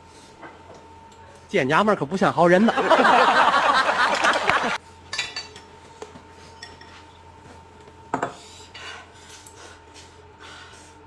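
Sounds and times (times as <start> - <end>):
dishes and cutlery clattering: 5.1 - 5.7.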